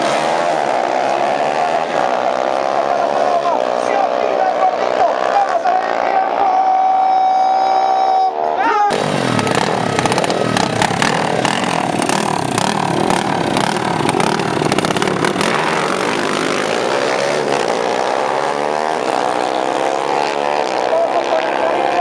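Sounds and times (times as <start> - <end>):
motorcycle engines revving hard: 0.0 - 6.8, 8.9 - 22.0
engine crackling pops: 8.9 - 15.7.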